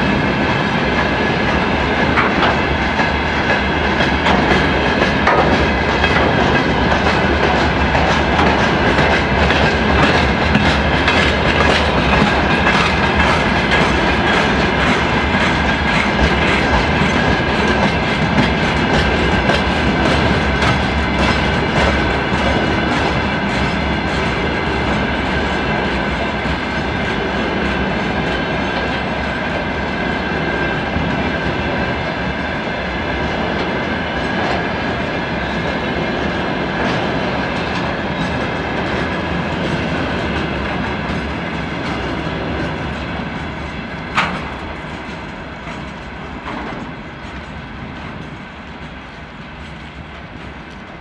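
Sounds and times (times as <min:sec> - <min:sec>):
train wheels clattering over joints: 0:00.1 - 0:31.5, 0:33.2 - 0:51.0.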